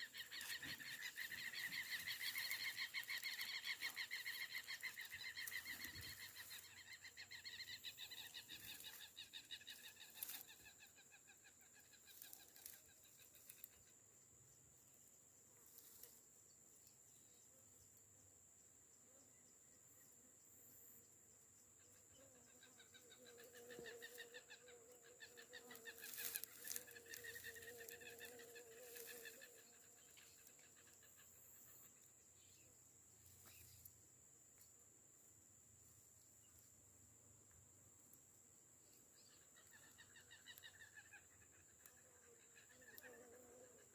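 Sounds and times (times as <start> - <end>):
pulsing animal calls: 0.0 - 11.0, 22.6 - 31.4.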